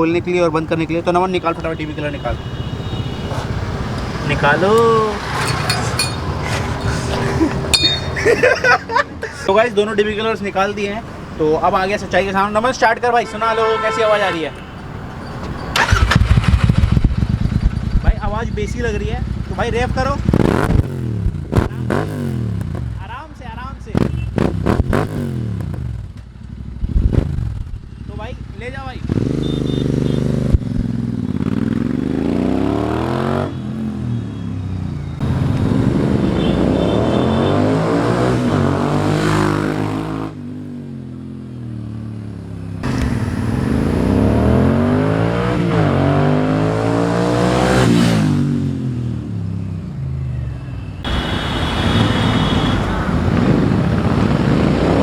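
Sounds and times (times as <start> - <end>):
motorcycle accelerating past: 42.8 - 49.2.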